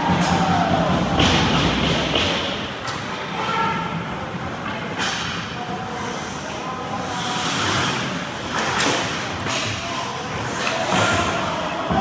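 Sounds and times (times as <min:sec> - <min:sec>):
faint voices: 0:03.0 - 0:12.0.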